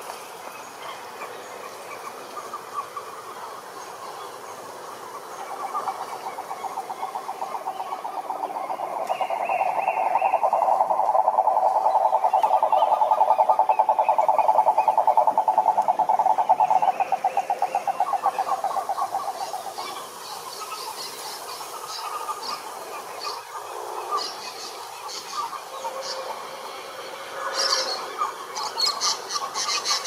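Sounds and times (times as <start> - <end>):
frog trilling: 5.5 - 20.0.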